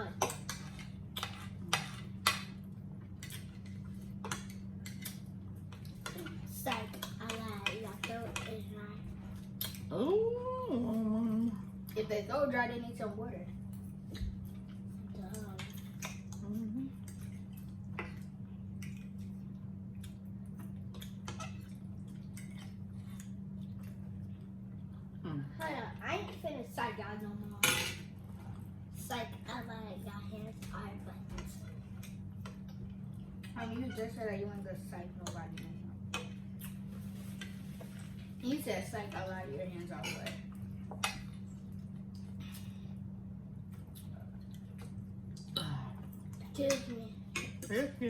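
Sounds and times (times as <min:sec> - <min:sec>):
steady low hum: 0:00.0 - 0:48.0
people eating wet smacks: 0:09.2 - 0:09.9, 0:13.7 - 0:25.4, 0:35.2 - 0:38.3, 0:40.0 - 0:48.0.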